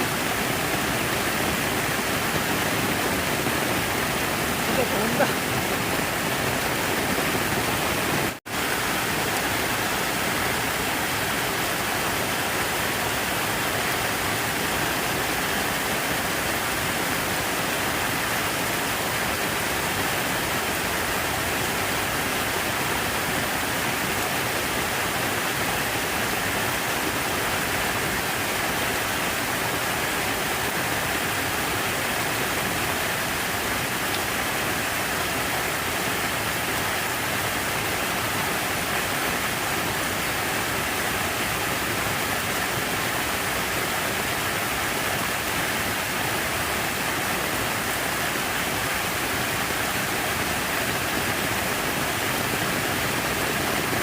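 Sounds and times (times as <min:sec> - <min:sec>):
falling water rushing: 0:00.0 - 0:54.0.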